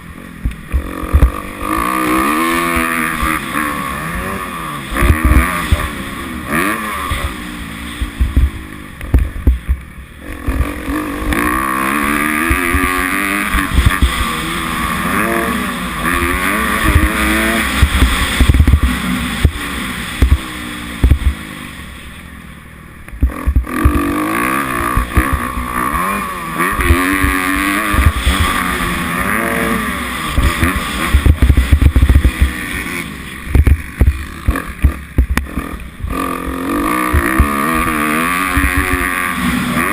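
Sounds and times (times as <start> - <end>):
motocross engine revving: 0.0 - 39.9
low thumps: 8.0 - 9.8, 15.2 - 21.5, 23.1 - 24.2, 30.3 - 32.6, 33.5 - 36.2.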